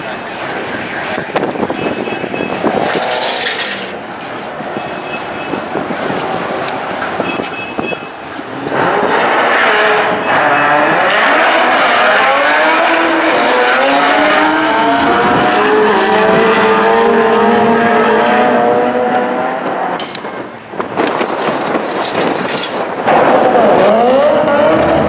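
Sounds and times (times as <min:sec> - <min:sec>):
car engines at full throttle: 0:00.0 - 0:25.0
car engine revving in burnout: 0:08.5 - 0:20.0, 0:22.8 - 0:25.0.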